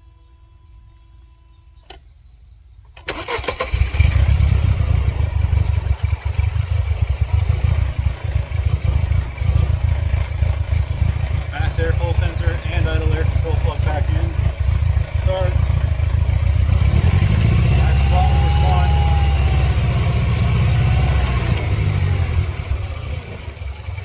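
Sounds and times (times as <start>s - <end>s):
click: 1.8s - 2.1s
starter cranking: 2.9s - 4.5s
car engine running: 3.9s - 24.0s.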